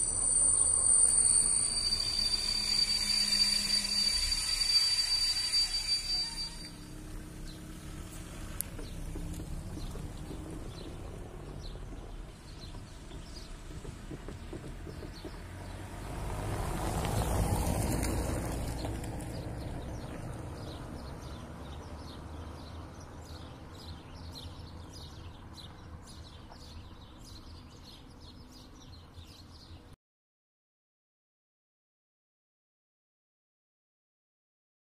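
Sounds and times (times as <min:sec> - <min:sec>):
passing vehicle rumble: 0:00.0 - 0:28.4
small birds chirping: 0:06.6 - 0:15.9, 0:18.7 - 0:30.0.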